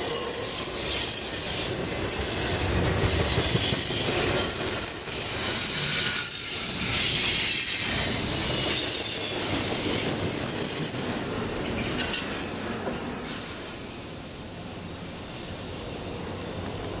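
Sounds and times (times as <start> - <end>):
rumble of wheels on rail: 0.0 - 17.0
train wheels squealing: 0.0 - 17.0.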